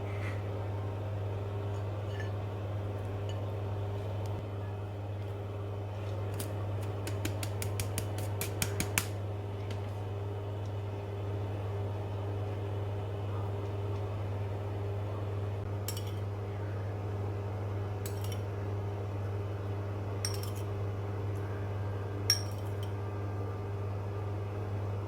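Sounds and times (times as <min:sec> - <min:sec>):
steady low hum: 0:00.0 - 0:25.0
metal utensils clinking on cookware: 0:15.8 - 0:16.3, 0:18.1 - 0:18.4, 0:20.3 - 0:20.7.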